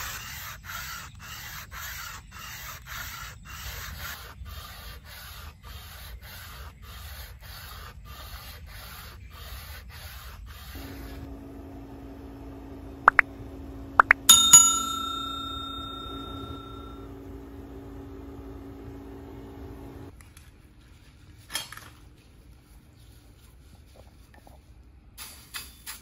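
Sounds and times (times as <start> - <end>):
low machine hum: 10.7 - 20.1
steel struck ringing: 14.0 - 20.1.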